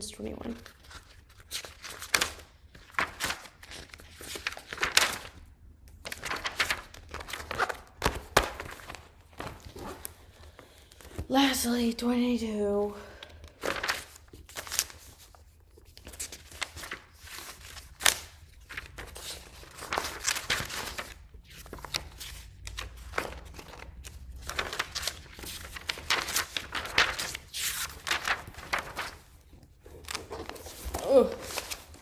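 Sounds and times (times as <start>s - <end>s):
objects rustling and shuffling: 24.5s - 32.0s.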